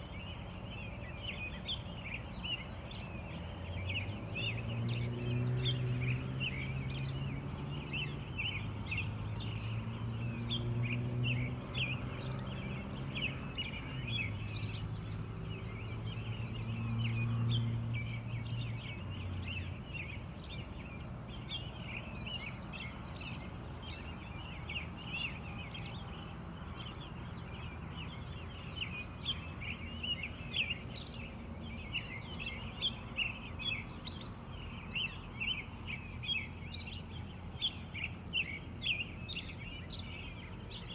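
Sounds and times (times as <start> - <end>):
steady high-pitched whine: 0.0 - 4.8
birds chirping: 0.0 - 40.9.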